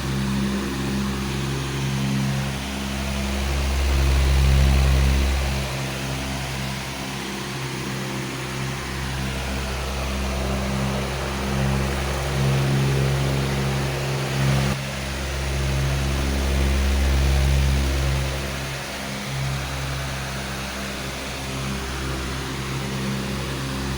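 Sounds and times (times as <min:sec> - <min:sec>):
electric fan running: 0:00.0 - 0:23.9.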